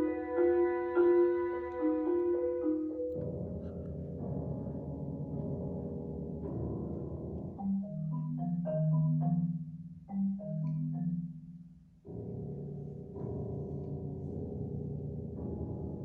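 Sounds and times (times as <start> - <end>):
marimba notes: 0.0 - 6.3, 7.3 - 13.4.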